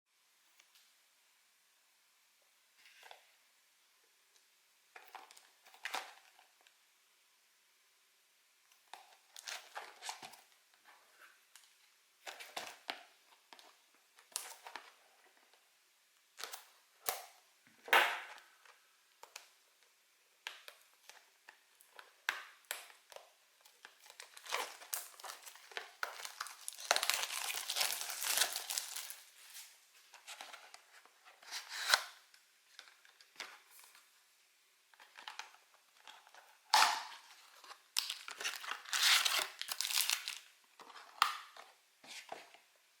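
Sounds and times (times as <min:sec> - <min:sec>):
packaging crinkling: 0:23.6 - 0:30.5, 0:36.1 - 0:41.6.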